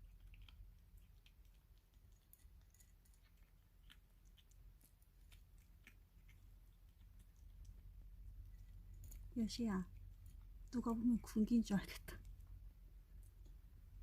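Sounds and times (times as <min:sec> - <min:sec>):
kittens chewing clicks: 0:00.0 - 0:10.8
low steady hum: 0:00.0 - 0:14.0.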